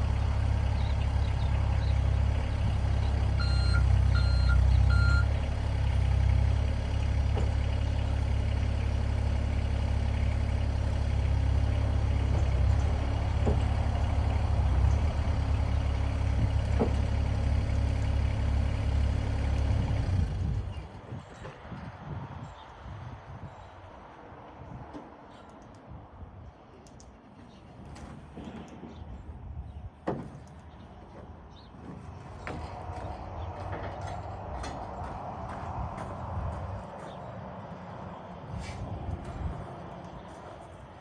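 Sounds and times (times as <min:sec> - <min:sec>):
excavator diesel engine under load: 0:00.0 - 0:22.2, 0:27.6 - 0:41.0
travel alarm beeping: 0:03.4 - 0:05.3.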